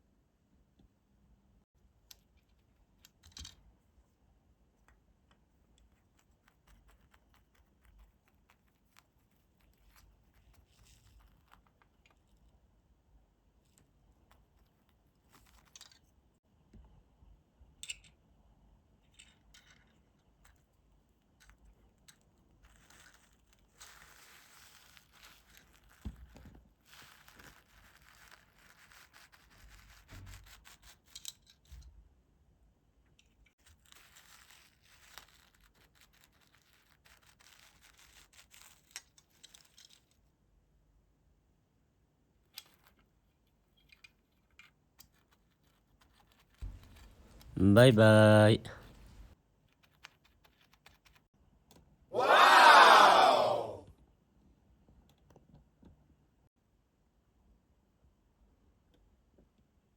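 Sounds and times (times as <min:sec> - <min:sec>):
handling ticks and scratches: 0:04.8 - 0:16.3, 0:20.4 - 0:31.9, 0:33.2 - 0:40.3, 0:42.5 - 0:47.6, 0:48.9 - 0:51.3
crinkling rustle: 0:05.7 - 0:12.6, 0:21.5 - 0:31.2, 0:33.6 - 0:40.2.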